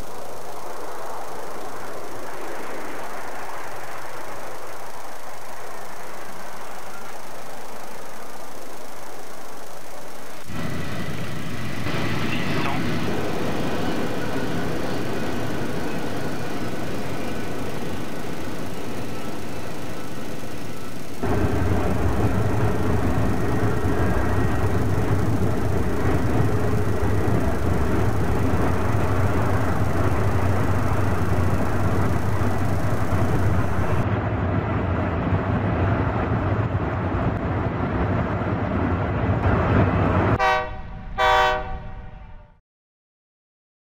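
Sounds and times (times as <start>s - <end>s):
train rumbling on rails: 0.0s - 42.6s
train horn blasts: 40.4s - 42.6s.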